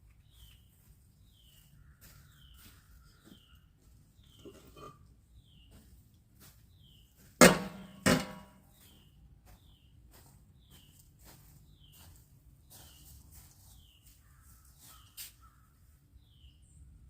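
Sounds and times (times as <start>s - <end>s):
sharp metal clanks: 7.4s - 8.6s.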